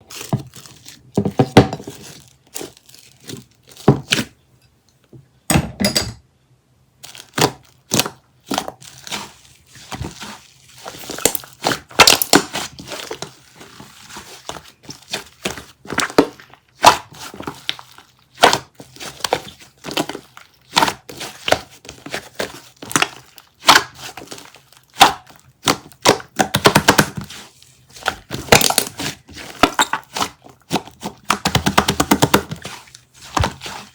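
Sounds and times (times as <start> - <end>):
packaging crinkling: 0.1 - 3.9.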